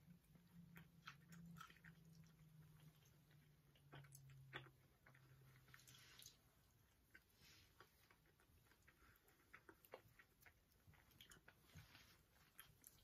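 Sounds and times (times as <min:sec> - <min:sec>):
chewing cookies: 0:00.0 - 0:13.0
low steady hum: 0:00.0 - 0:13.0.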